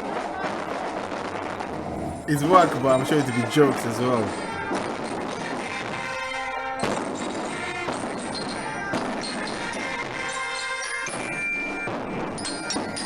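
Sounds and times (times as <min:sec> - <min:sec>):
wind instrument chords: 0:02.3 - 0:04.5.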